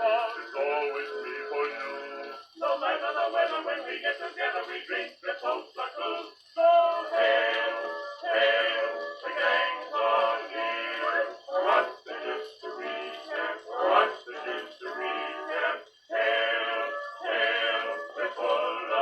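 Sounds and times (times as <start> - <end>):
male vocal quartet singing: 0.0 - 19.0.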